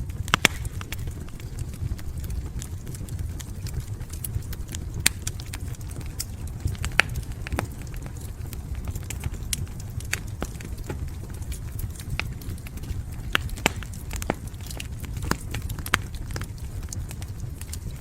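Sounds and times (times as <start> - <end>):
low rumble of burning: 0.0 - 18.0
wood fire crackling: 0.0 - 18.0.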